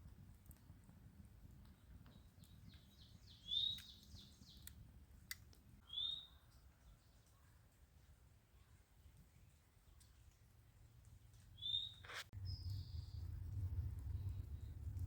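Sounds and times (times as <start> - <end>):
bird chirping faintly: 1.7 - 4.7, 11.5 - 13.4
low outdoor rumble: 12.3 - 15.0.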